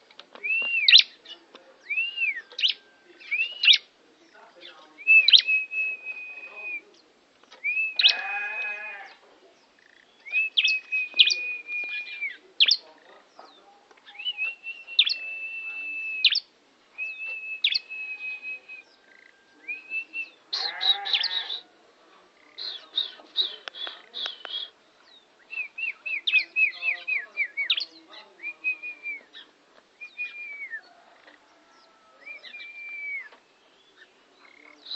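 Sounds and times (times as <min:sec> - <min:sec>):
bird singing high whistled notes: 0:00.4 - 0:03.9, 0:05.0 - 0:06.9, 0:07.6 - 0:08.2, 0:10.2 - 0:12.8, 0:14.1 - 0:20.4, 0:24.3 - 0:31.0, 0:32.2 - 0:34.1
buzzy bleating bird phrase: 0:08.0 - 0:09.2, 0:20.6 - 0:21.6.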